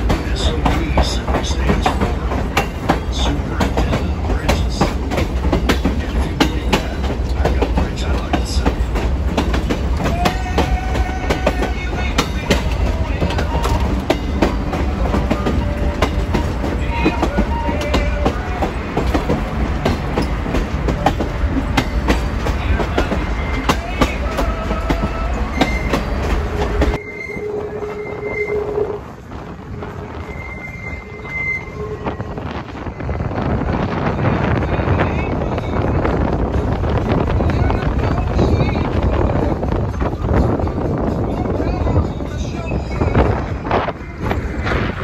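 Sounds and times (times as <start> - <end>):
train rumbling on track: 0.0 - 45.0
wheel squealing: 9.6 - 29.1, 29.9 - 32.3.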